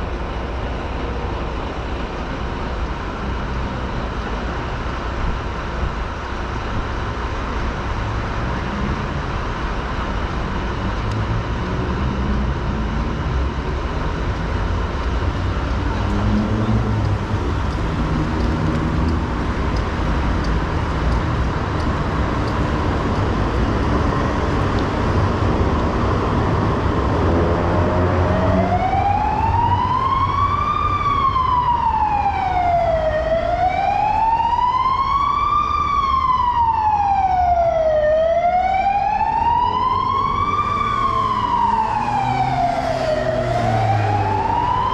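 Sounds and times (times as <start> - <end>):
city traffic: 0.0 - 44.9
emergency siren wailing: 15.9 - 44.9.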